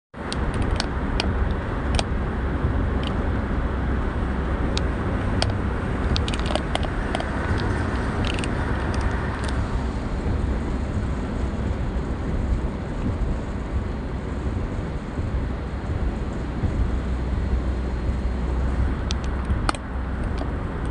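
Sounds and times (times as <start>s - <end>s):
car driving at speed: 0.2s - 20.9s
sharp clicks: 0.3s - 2.1s, 4.7s - 9.6s, 19.0s - 20.9s.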